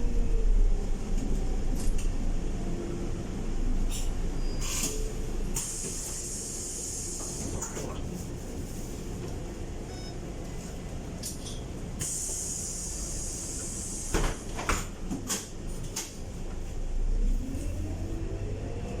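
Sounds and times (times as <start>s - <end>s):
bus engine and road rumble: 0.0s - 19.0s
compressed air hiss: 5.6s - 7.4s, 12.0s - 14.2s.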